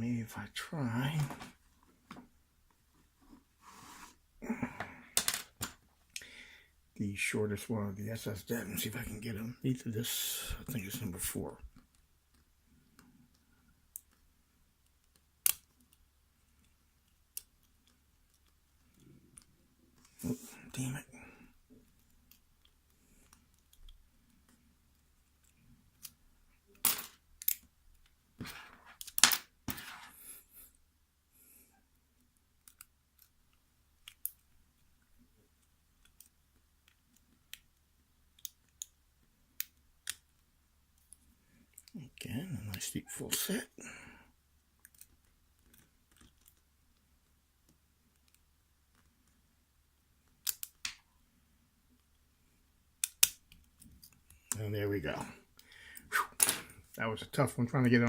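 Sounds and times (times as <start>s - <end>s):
lock pick metallic clicks: 50.4s - 51.0s, 53.0s - 54.2s.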